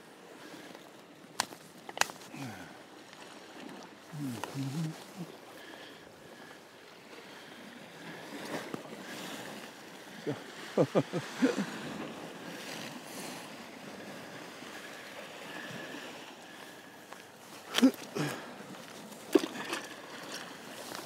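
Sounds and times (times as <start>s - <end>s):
sea waves: 0.0s - 21.0s
wind: 0.0s - 21.0s.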